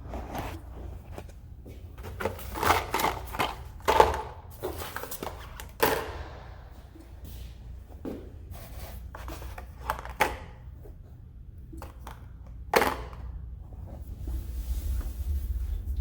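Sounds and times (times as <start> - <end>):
low hum: 6.0 - 8.5, 13.4 - 16.0.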